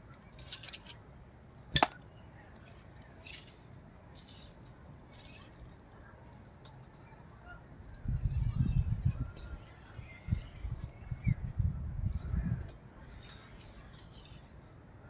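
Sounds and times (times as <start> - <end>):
wood scraping and rustling: 2.6 - 6.0.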